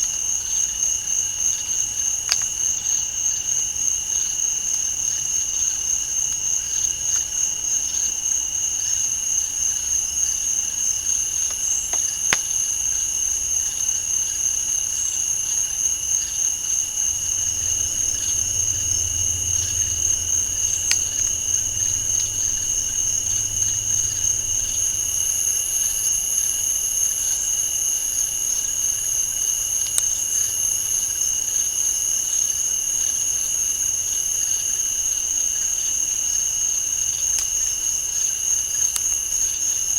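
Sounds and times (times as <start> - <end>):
insects trilling: 0.0 - 39.9
faint sharp clicks: 2.3 - 2.5
low rumble: 16.8 - 26.7.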